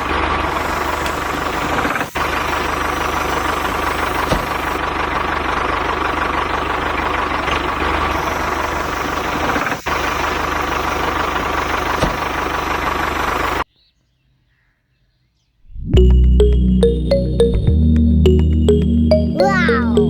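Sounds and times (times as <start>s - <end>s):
small tractor motor rumbling: 0.0s - 13.6s.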